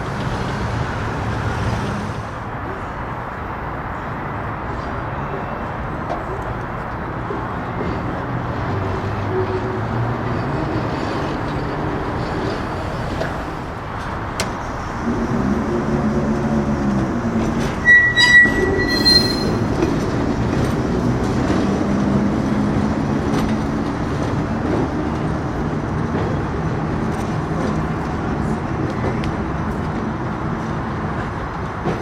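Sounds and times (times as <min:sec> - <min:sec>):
streetcar motor hum: 0:00.0 - 0:32.0
streetcar rumbling on rails: 0:00.0 - 0:32.0
high wheel squeal: 0:17.7 - 0:20.1.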